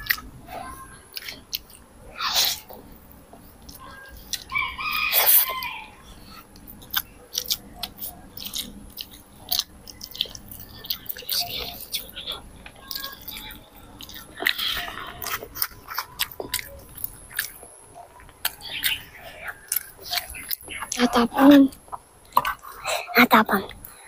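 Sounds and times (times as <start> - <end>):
chewing with wet mouth clicks: 0.0 - 5.8, 6.4 - 22.8.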